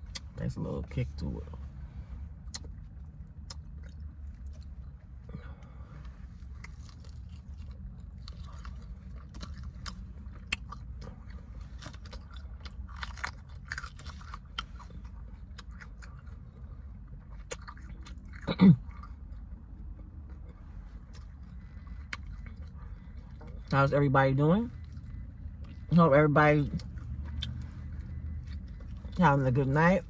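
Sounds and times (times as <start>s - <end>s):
crunchy chewing: 6.4s - 23.8s, 26.6s - 29.7s.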